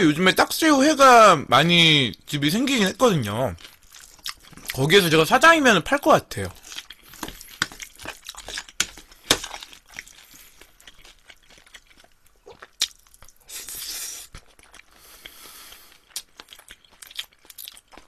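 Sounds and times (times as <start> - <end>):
close chewing with mouth sounds: 3.0 - 5.2, 6.4 - 18.0.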